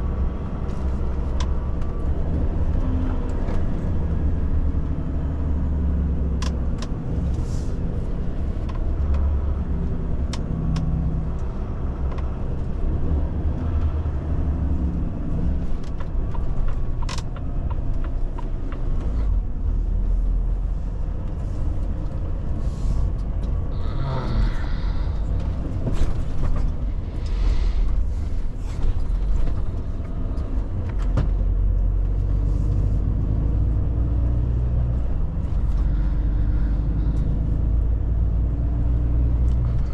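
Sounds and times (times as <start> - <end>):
truck engine and tyres rumbling: 0.0 - 39.9
sharp clicks and knocks: 15.8 - 19.2.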